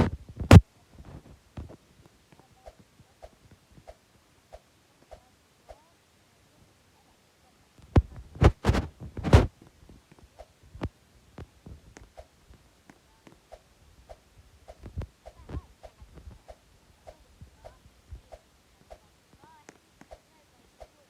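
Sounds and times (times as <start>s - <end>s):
dull thumps: 8.0s - 9.5s.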